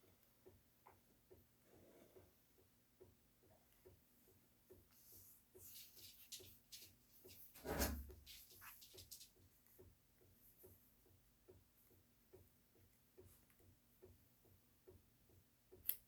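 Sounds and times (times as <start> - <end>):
rustling and handling noises: 3.5 - 11.0
soft ticking: 8.5 - 16.0.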